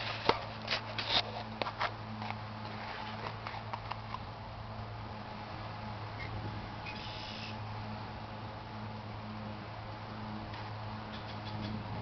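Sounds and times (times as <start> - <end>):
sharp clicks and knocks: 10.5 - 11.8.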